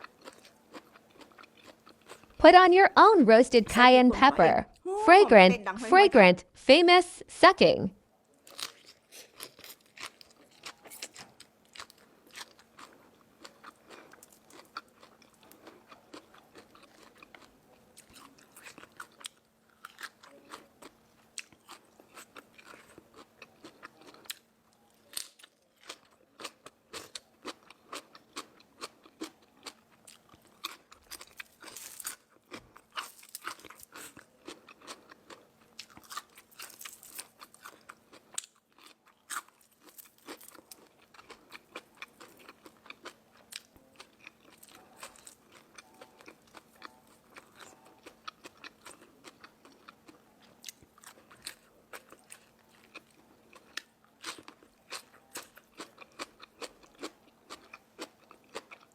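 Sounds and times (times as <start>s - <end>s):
chewing crispy food: 0.0s - 2.4s, 8.2s - 58.9s.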